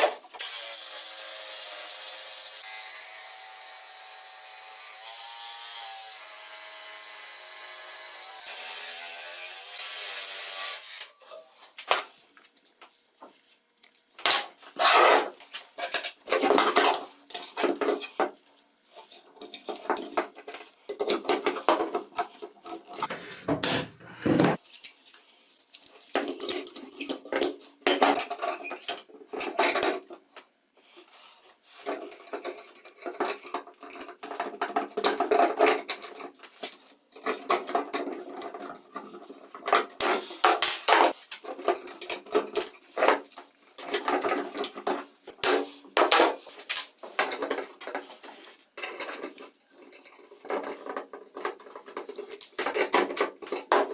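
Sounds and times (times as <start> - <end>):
small power tool running: 0.4 - 11.1
scraping and rubbing strokes: 23.0 - 24.6.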